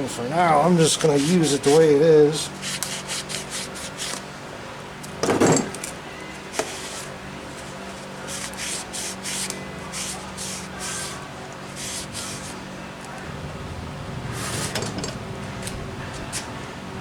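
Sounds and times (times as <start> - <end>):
steady low hum: 2.0 - 17.0
tools clattering: 5.2 - 6.0, 14.5 - 15.8.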